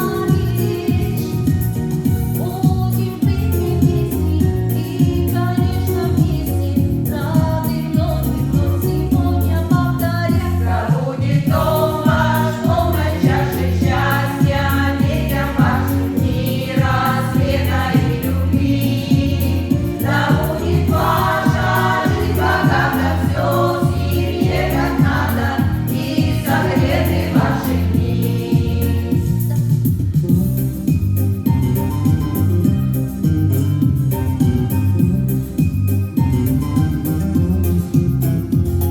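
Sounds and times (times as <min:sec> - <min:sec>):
instrumental accompaniment: 0:08.3 - 0:38.9
choir singing: 0:10.4 - 0:29.5.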